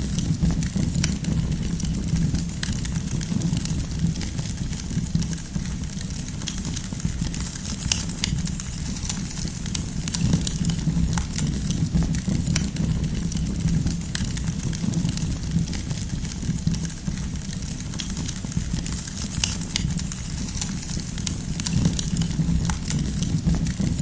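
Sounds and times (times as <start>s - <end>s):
firewood crackling and popping: 0.0s - 24.0s
low rumble of flame: 0.0s - 24.0s.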